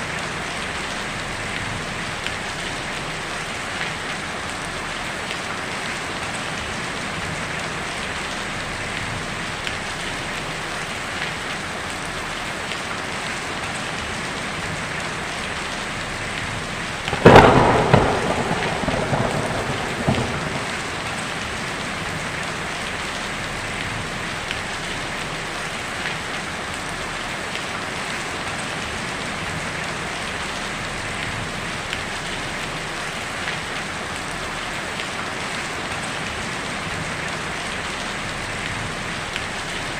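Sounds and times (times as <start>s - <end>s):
heavy rain on a tin roof: 0.0s - 39.9s
thunderclap rumbling: 17.0s - 23.9s.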